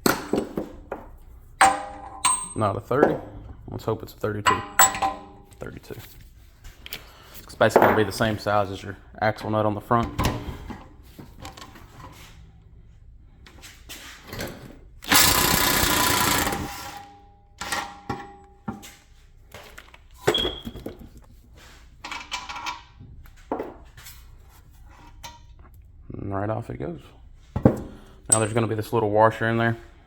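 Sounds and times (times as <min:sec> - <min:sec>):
tools clinking and knocking: 0:00.0 - 0:03.6, 0:04.3 - 0:05.8, 0:06.8 - 0:08.4, 0:22.0 - 0:23.0
impact wrench hammering: 0:01.6 - 0:03.2, 0:04.4 - 0:05.5, 0:15.0 - 0:18.4.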